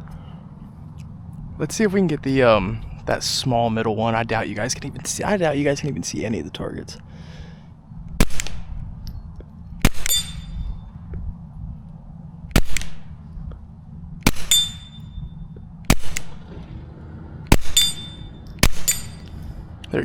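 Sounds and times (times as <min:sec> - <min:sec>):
suppressed pistol shots: 0:08.2 - 0:08.8, 0:09.8 - 0:10.6, 0:12.5 - 0:13.2, 0:14.2 - 0:15.1, 0:15.9 - 0:16.5, 0:17.5 - 0:19.3
steel target ringing ping: 0:09.9 - 0:10.8, 0:14.3 - 0:15.4, 0:17.5 - 0:19.4.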